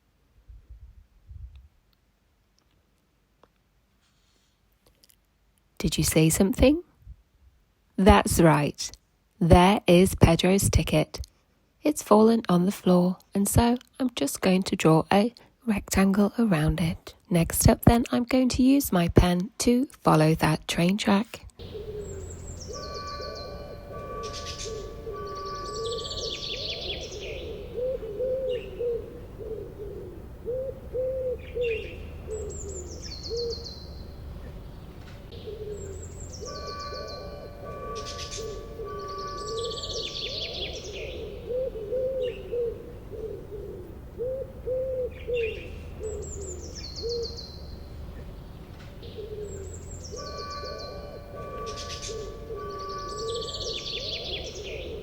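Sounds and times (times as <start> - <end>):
bird chirp trills: 21.6 - 55.0
low cooing calls: 21.6 - 55.0.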